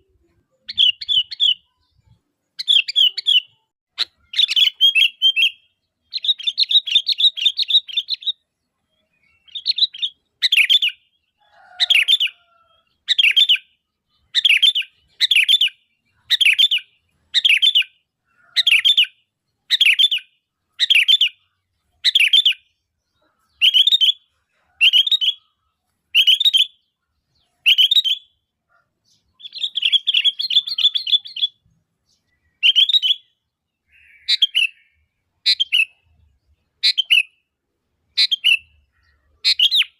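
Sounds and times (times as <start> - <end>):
bulbul chattering: 29.0 - 36.2
bird call notes: 32.5 - 36.0.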